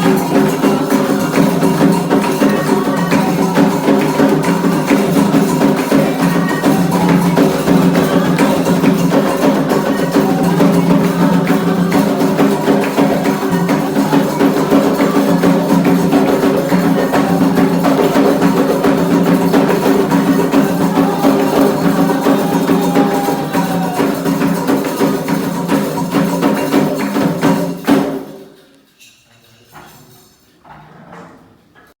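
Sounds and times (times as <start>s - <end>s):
fast drum rhythm: 0.0s - 28.4s
struck and shaken percussion: 0.0s - 30.5s.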